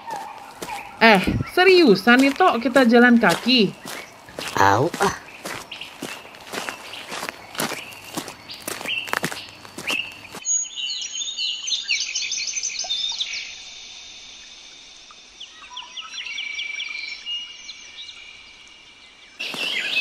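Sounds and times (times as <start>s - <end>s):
footsteps: 0.0s - 10.4s
birds chirping and singing: 0.0s - 13.7s, 15.4s - 20.0s.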